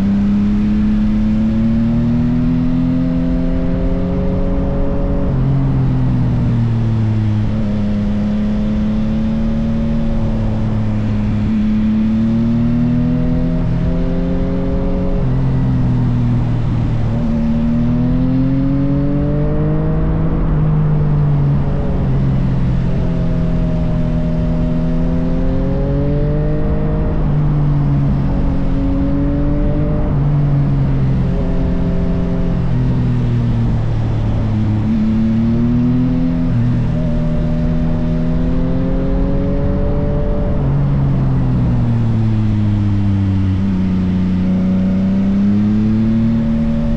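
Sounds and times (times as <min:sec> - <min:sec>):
motorcycle engine shifting gears: 0:00.0 - 0:46.9.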